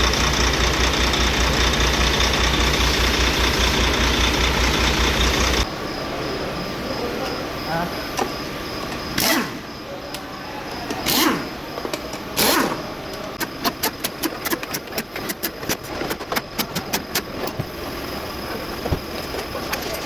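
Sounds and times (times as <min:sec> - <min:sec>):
ratchet wrench clicking: 0:11.0 - 0:12.8, 0:13.4 - 0:17.6.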